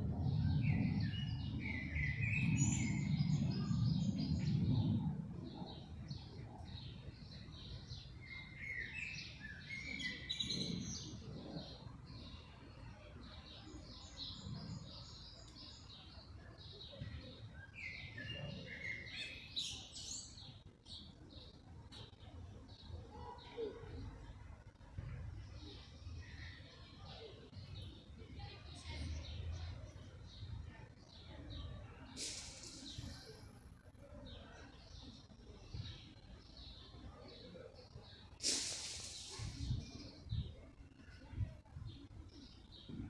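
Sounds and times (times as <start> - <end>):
low rumble: 0.0 - 7.5
small birds chirping: 0.2 - 43.0.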